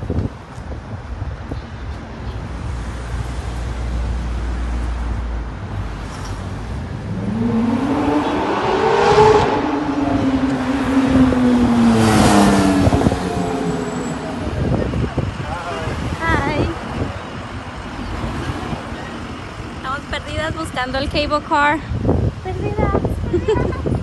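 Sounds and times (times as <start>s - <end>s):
traffic rumble: 0.0s - 24.0s
wind: 0.0s - 24.0s
vehicle engine passing: 5.7s - 17.4s.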